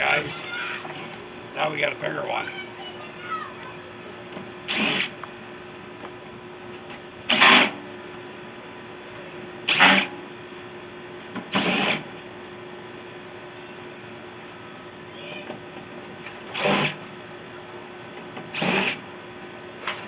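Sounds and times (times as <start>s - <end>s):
power drill bursts: 4.7s - 5.2s, 11.5s - 12.0s, 16.5s - 17.0s, 18.6s - 19.0s.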